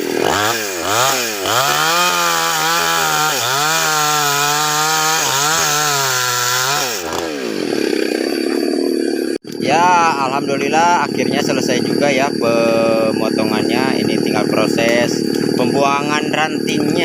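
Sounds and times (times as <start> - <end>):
chainsaw cutting wood: 0.0 - 9.6, 14.1 - 15.9, 16.6 - 17.0.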